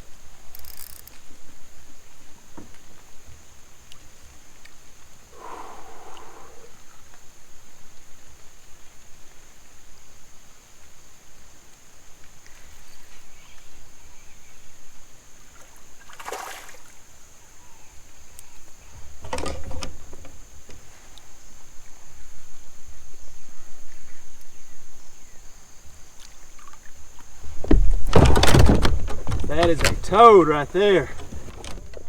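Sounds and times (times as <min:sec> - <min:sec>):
water splashing around kayak: 0:15.5 - 0:17.0, 0:26.2 - 0:32.0.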